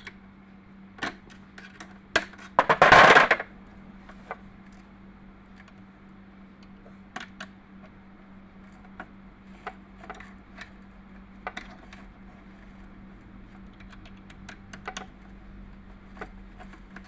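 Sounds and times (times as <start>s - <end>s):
faint steady hum: 0.0s - 17.0s
clattering rattle: 2.6s - 3.5s.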